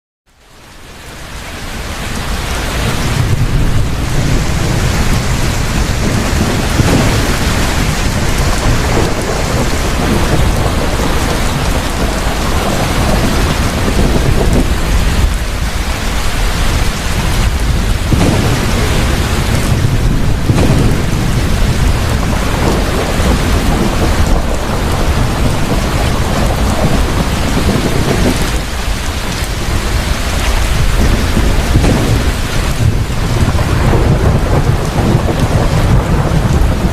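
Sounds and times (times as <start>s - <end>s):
heavy steady rain: 0.3s - 36.9s
rolling thunder: 2.4s - 36.9s.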